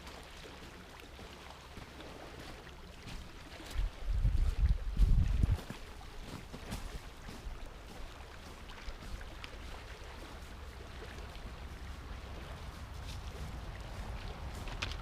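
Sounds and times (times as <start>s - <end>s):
faint ticks and splashes: 0.0s - 15.0s
small waves lapping at shore: 0.0s - 15.0s.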